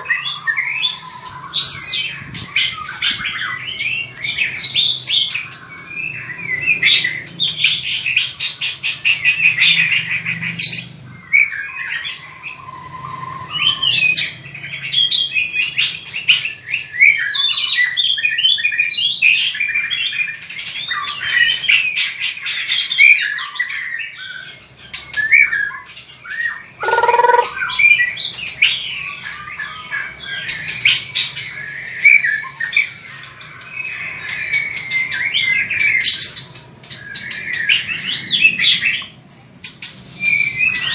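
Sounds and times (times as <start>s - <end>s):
bird singing rattles and whistles: 11.4s - 40.9s.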